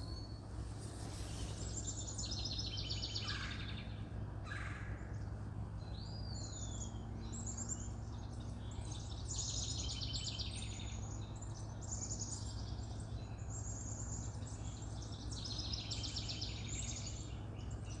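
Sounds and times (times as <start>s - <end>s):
birds singing fast high trills: 0.0s - 18.0s
low background hum: 0.0s - 18.0s.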